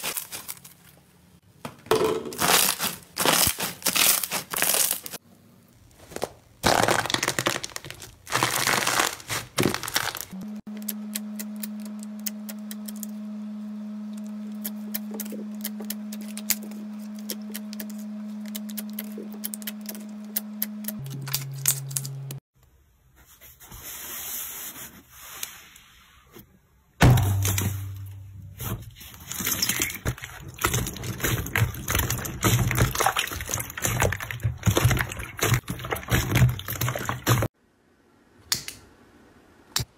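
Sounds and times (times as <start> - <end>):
slime crackling and popping: 6.2 - 10.4
steady low hum: 10.4 - 22.4, 27.0 - 29.4.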